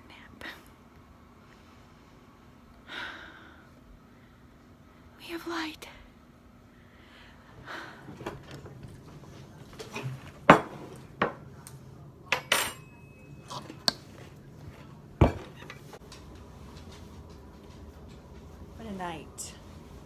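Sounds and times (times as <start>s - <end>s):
dishes and cutlery clinking: 9.7s - 11.4s, 12.3s - 16.0s.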